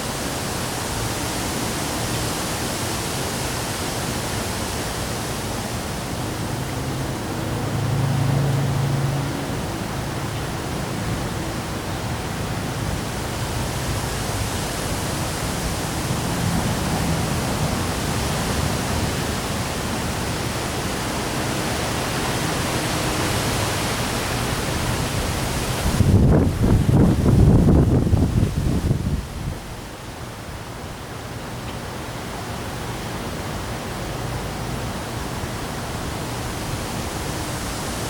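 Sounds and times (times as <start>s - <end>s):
heavy rain in wind: 0.0s - 38.0s
wind buffeting microphone: 24.6s - 29.8s.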